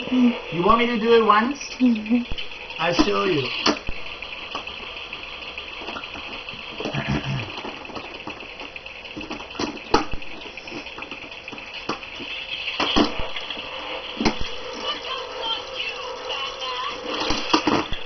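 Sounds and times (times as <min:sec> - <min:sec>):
toy race cars whirring on track: 0:00.0 - 0:18.0
sharp clicks and knocks: 0:05.8 - 0:13.2.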